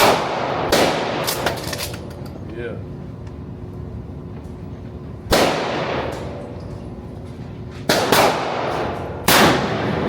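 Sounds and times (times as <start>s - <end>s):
gunshots echoing indoors: 0.0s - 1.6s, 5.3s - 6.4s, 7.9s - 10.0s.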